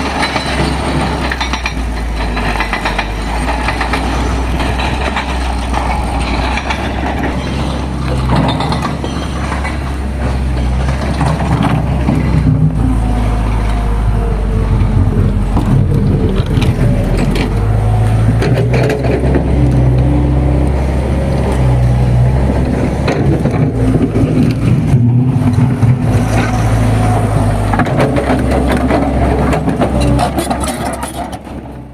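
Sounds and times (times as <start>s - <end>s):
rattling and knocking: 0.0s - 13.1s
vehicle engine humming: 0.0s - 31.9s.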